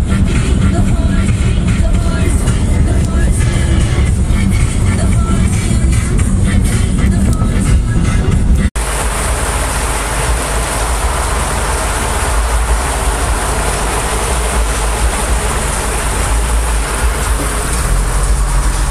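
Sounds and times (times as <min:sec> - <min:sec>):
wind buffeting microphone: 0:00.8 - 0:18.9
heavy rain hiss: 0:08.8 - 0:18.9.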